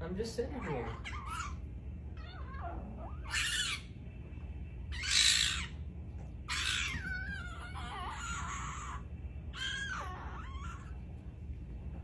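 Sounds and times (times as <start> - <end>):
fox screaming: 0.6 - 1.6, 2.2 - 3.9, 4.9 - 5.8, 6.5 - 11.0
fox calling: 2.2 - 3.9, 4.9 - 5.8, 6.5 - 9.0, 9.6 - 10.9.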